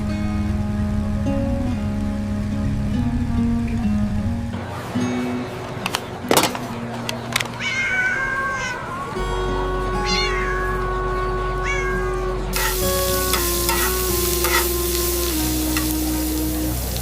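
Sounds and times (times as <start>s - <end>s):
cat meowing: 7.6s - 9.2s, 10.0s - 11.0s, 11.6s - 13.3s
food sizzling in a pan: 12.5s - 17.0s.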